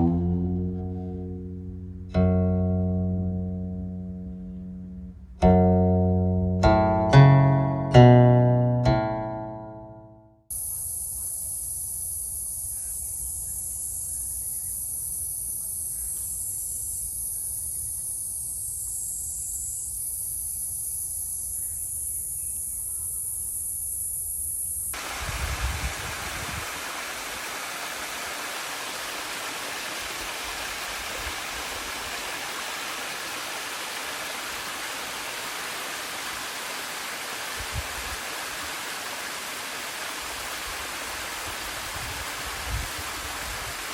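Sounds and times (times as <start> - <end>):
high-pitched hiss: 10.5 - 43.9
water rushing: 25.0 - 43.9.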